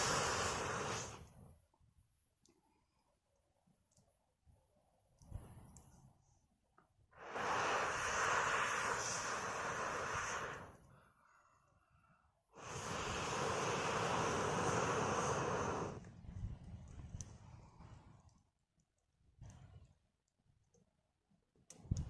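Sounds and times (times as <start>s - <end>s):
rushing blasts through blowing pipe: 0.0s - 1.4s, 7.2s - 10.8s, 12.6s - 16.1s.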